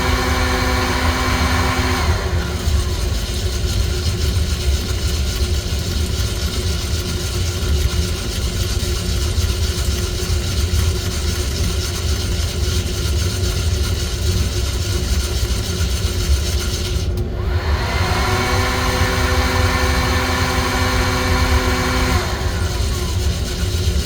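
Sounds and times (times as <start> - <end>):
motor whine: 0.0 - 3.8, 17.2 - 24.0
coffee roaster mechanical rumble: 0.0 - 24.0.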